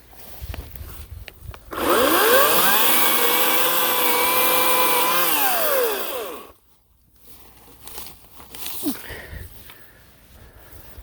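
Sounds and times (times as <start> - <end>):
electric chainsaw motor whine: 1.7 - 6.6.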